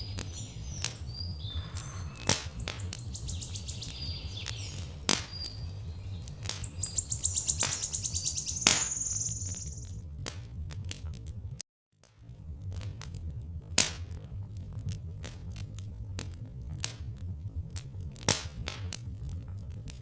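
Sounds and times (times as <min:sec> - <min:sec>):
birds chirping and trilling: 0:00.0 - 0:09.9
rapid high bird trill: 0:00.0 - 0:09.9
crackling wood fire: 0:00.0 - 0:11.2
steady low rumble: 0:00.0 - 0:11.6, 0:12.2 - 0:20.0.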